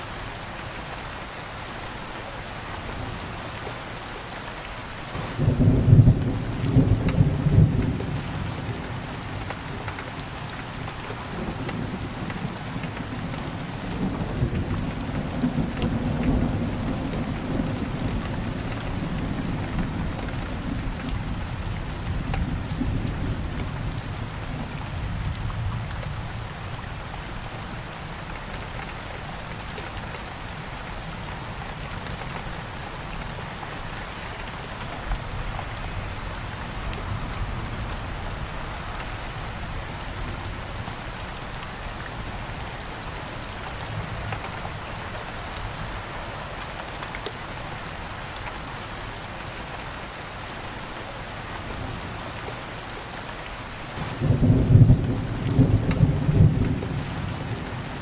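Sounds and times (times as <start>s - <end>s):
heavy rain on window pane: 0.4s - 58.0s
low rumble of thunder: 5.1s - 9.0s, 11.2s - 26.8s, 54.0s - 58.0s.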